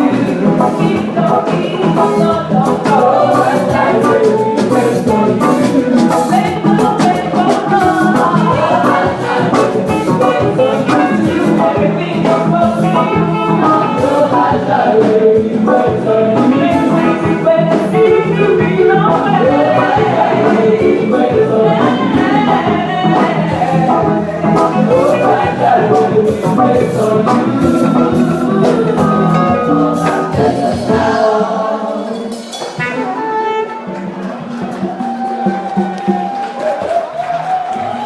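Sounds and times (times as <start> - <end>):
choir singing: 0.0 - 36.6
instrumental accompaniment: 0.0 - 38.0
steady percussive beat: 32.1 - 38.0.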